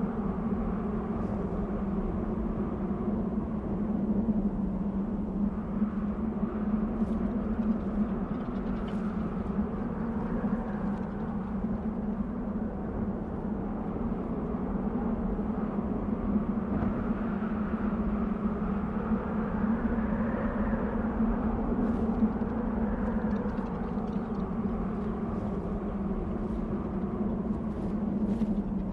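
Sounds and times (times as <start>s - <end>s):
low steady drone: 0.0s - 28.9s
wind blowing: 15.9s - 28.9s.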